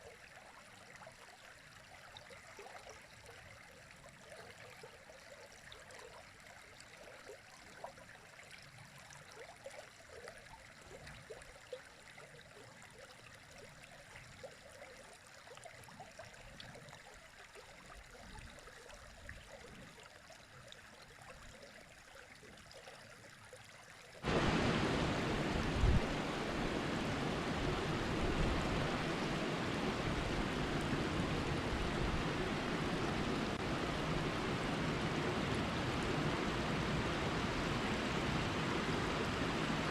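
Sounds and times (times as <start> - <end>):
trickling gurgling stream: 0.0 - 39.9
loud rush of water: 24.2 - 39.9.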